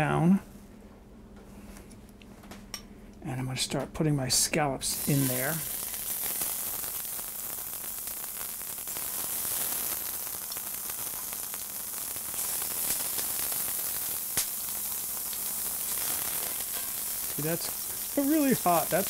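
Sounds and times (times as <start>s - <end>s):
scallops sizzling in oil: 5.0s - 19.0s.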